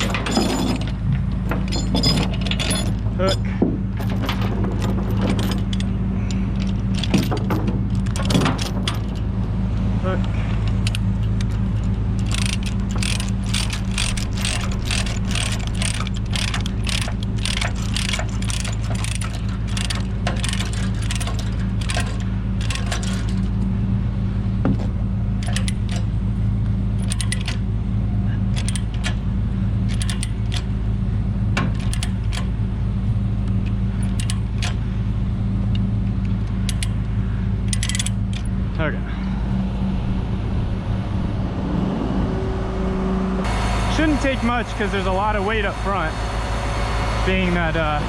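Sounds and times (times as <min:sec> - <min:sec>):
diesel engine idling: 0:00.0 - 0:48.0
ratchet clicking: 0:10.6 - 0:23.6, 0:25.4 - 0:26.1, 0:27.0 - 0:27.6, 0:28.5 - 0:29.2, 0:29.9 - 0:30.7, 0:31.6 - 0:32.6, 0:33.5 - 0:34.8, 0:36.4 - 0:38.5.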